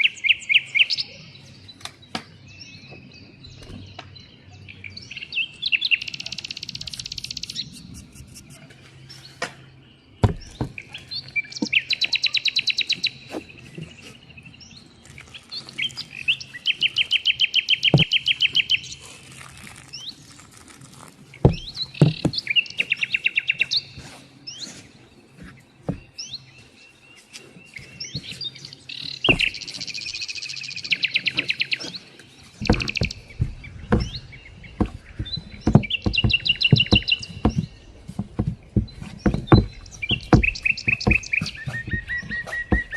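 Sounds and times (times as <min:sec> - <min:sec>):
songbirds trilling: 0:00.0 - 0:42.9
sharp knocks and taps: 0:17.9 - 0:18.1, 0:32.6 - 0:42.9.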